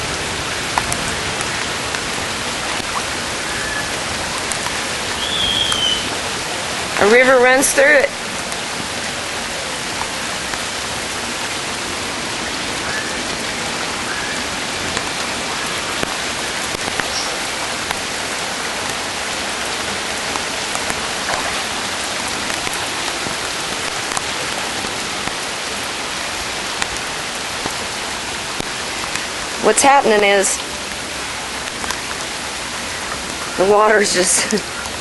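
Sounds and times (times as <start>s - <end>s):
heavy rain hissing: 0.0s - 35.0s
faint raindrop taps: 0.7s - 3.2s, 3.8s - 6.2s, 14.9s - 18.1s, 19.7s - 25.5s, 26.7s - 27.8s, 28.5s - 29.3s, 30.2s - 32.3s, 33.0s - 35.0s.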